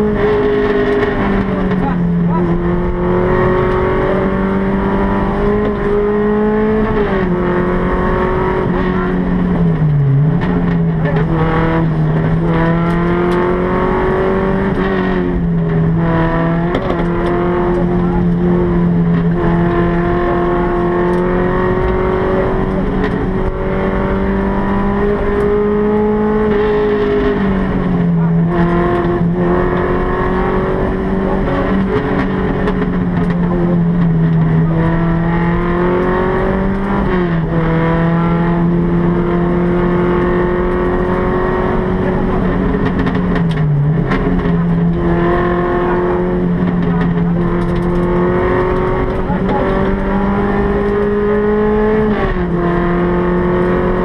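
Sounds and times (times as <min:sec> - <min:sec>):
car engine under load: 0:00.0 - 0:54.0.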